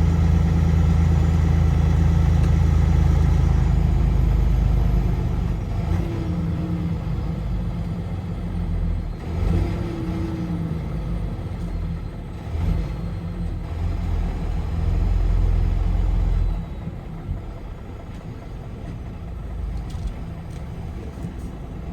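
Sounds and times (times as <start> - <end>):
car engine and road noise: 0.0 - 21.9.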